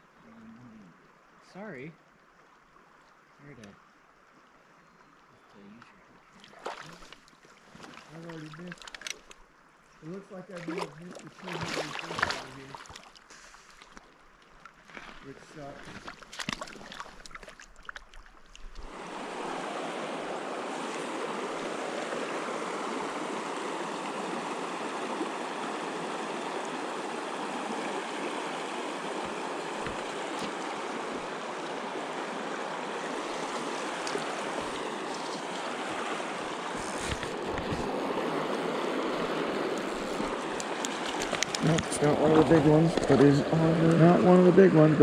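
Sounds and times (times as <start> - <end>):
river water rushing over rocks: 18.8 - 44.3.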